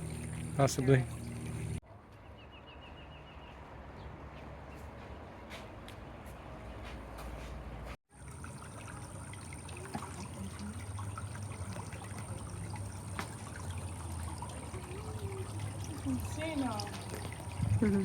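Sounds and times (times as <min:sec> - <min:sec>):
water trickling in channel: 0:00.0 - 0:01.8, 0:08.1 - 0:18.0.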